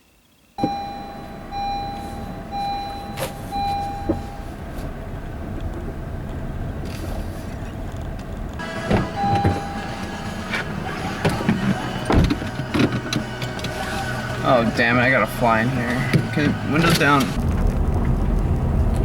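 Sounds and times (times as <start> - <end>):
high chime beeps: 0.6 - 4.6, 9.0 - 10.6
vehicle engine running: 0.6 - 19.0.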